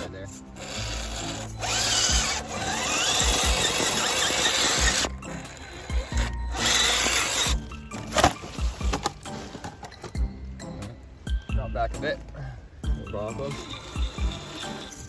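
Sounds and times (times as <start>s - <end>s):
electric motor and gears whining: 0.0s - 9.6s, 13.3s - 15.0s.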